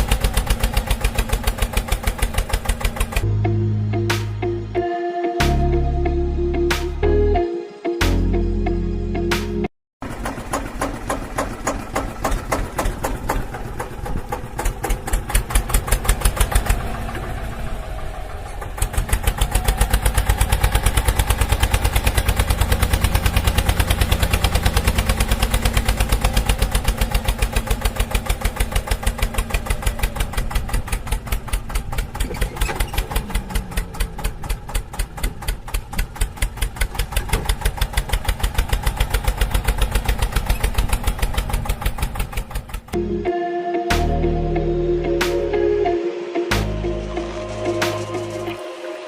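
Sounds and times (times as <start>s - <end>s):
engine chugging at idle: 0.0s - 3.3s, 10.0s - 43.1s.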